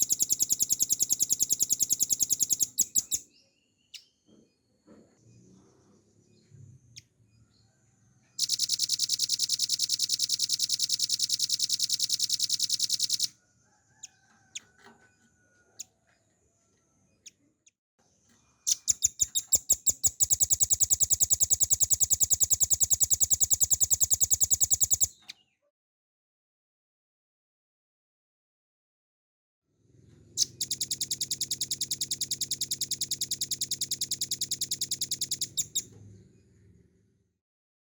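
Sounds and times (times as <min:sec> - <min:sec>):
bird singing rapid rattling trill: 0:00.0 - 0:04.2, 0:08.4 - 0:13.3, 0:18.6 - 0:25.4, 0:30.3 - 0:35.9.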